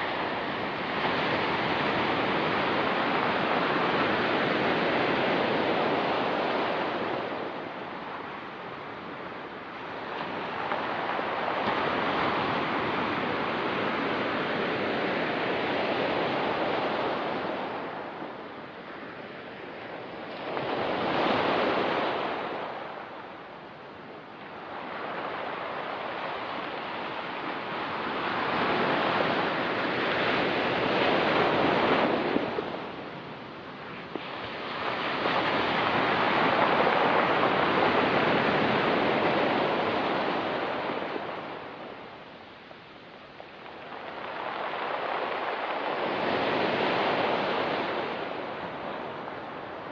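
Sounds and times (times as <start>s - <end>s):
waves breaking on pebble beach: 24.5s - 42.0s, 43.4s - 49.9s.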